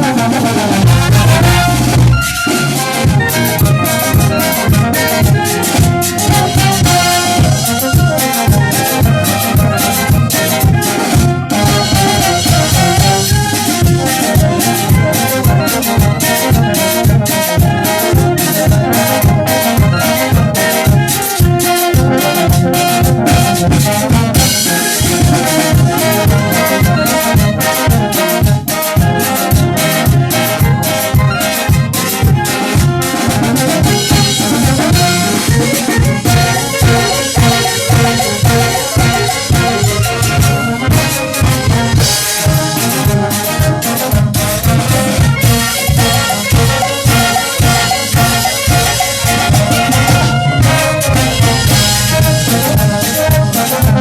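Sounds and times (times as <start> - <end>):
steady drum beat: 0.0 - 54.0
trumpets and trombones: 0.0 - 54.0
cymbals ringing: 34.0 - 42.4, 45.5 - 52.9.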